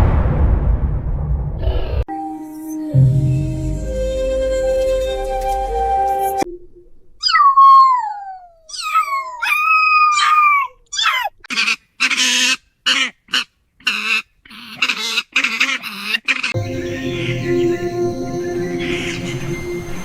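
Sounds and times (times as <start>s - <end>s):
cartoon falling wavering cries: 7.2s - 11.3s.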